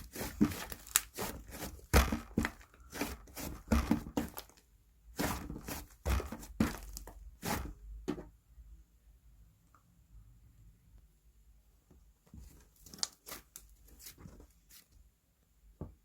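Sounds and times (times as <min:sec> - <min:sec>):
slime crackling and popping: 0:00.1 - 0:01.2.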